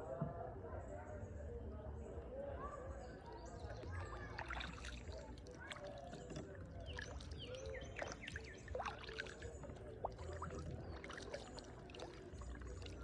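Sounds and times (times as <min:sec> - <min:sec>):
water drips and small splashes: 0:03.2 - 0:13.0
paddle dipping into water: 0:04.4 - 0:13.0.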